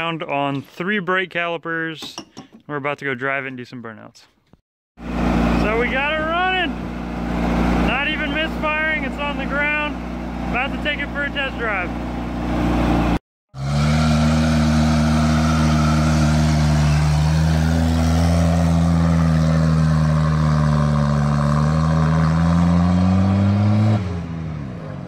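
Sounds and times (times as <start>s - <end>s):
car engine idling: 5.0s - 13.2s, 13.8s - 21.3s
car engine running on the road: 5.0s - 25.0s.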